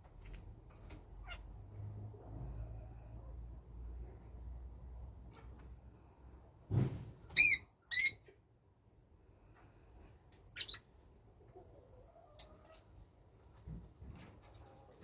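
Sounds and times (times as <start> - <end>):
soft thump: 6.7 - 7.2
pet birds squawking: 7.4 - 8.2, 10.6 - 10.8.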